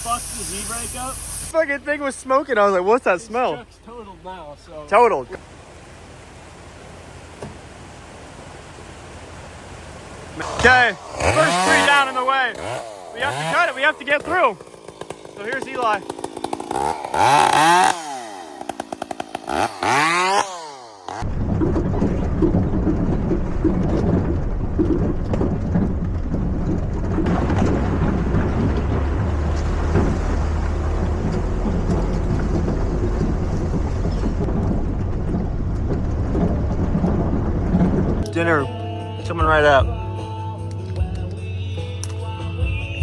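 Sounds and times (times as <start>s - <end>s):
chainsaw engine revving: 10.3s - 21.3s
steady low rumble: 21.2s - 38.3s.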